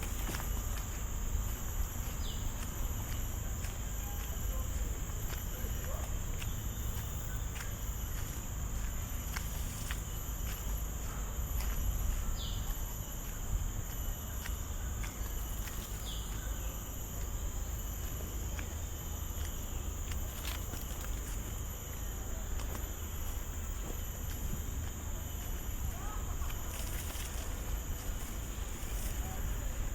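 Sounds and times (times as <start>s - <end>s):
faint footsteps on trail: 0.0s - 29.9s
forest insects droning: 0.0s - 29.9s
pulsing insect trill: 0.0s - 29.9s.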